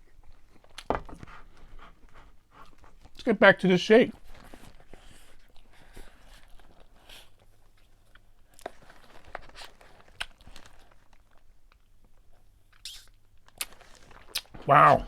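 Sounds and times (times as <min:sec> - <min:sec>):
faint crunches: 0:04.2 - 0:11.8, 0:13.4 - 0:15.0
person chewing: 0:04.3 - 0:11.3, 0:12.7 - 0:15.0
mouth clicks: 0:12.8 - 0:13.7.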